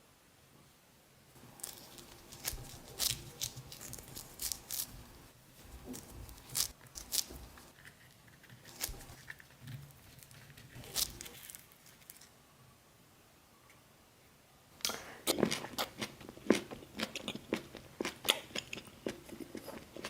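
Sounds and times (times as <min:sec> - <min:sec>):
crisp food tearing and crunching: 0:01.4 - 0:12.3.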